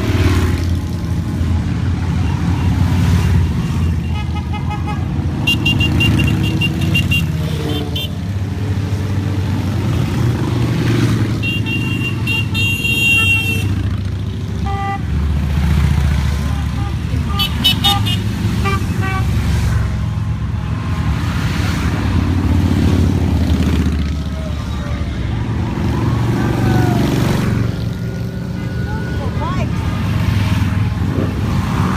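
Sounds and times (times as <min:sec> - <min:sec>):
motorcycles riding past: 0:00.0 - 0:31.9
horns tooting: 0:02.0 - 0:08.4, 0:11.1 - 0:15.3, 0:16.3 - 0:19.6, 0:23.9 - 0:31.1.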